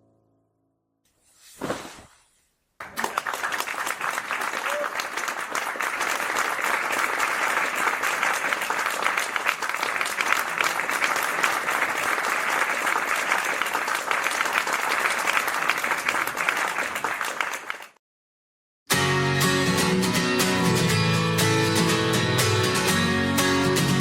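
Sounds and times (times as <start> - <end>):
audience applauding: 2.8 - 18.0.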